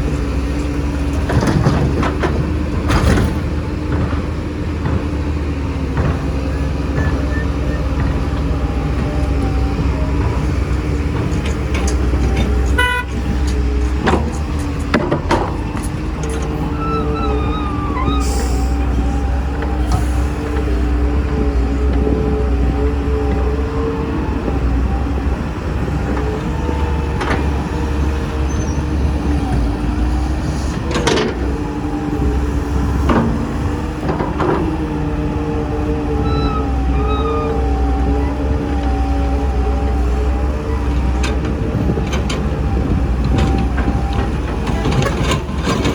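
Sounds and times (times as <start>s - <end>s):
heavy diesel machinery running: 0.0s - 45.9s
excavator knocking in soil: 0.2s - 23.8s
horn toot: 12.7s - 13.3s.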